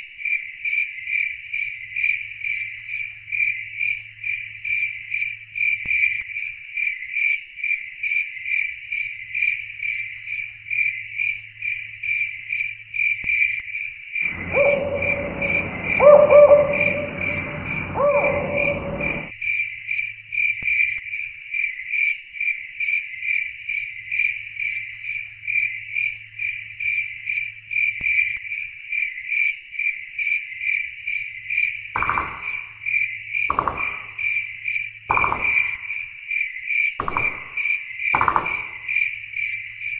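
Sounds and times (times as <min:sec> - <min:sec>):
insects chirping rhythmically: 0:00.1 - 0:39.9
noisy sound with held tones: 0:14.3 - 0:19.3.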